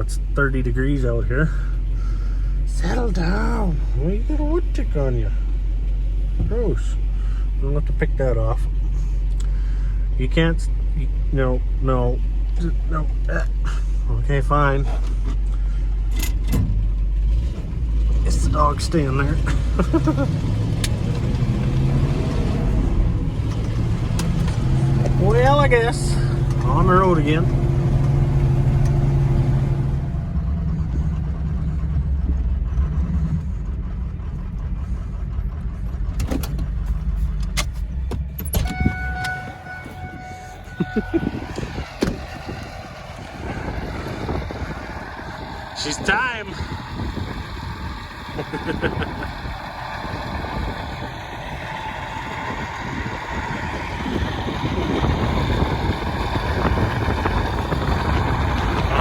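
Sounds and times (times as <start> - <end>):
vehicle engine and road rumble: 0.0 - 59.0.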